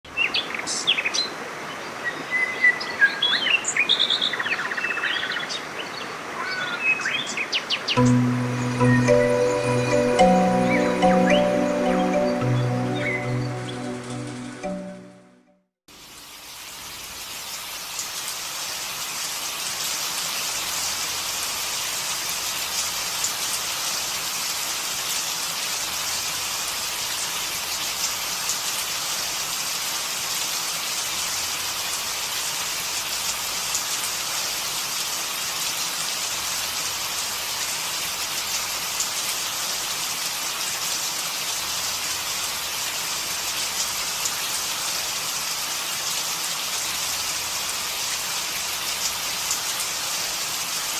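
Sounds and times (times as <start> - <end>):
rain hissing on surfaces: 15.9 - 50.9.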